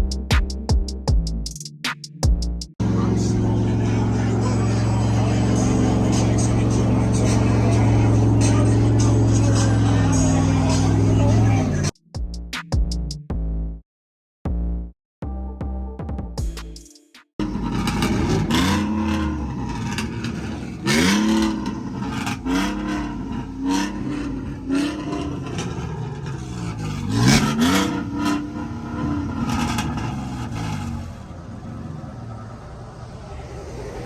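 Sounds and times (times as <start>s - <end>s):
truck engine revving: 2.8s - 11.9s, 17.4s - 34.0s.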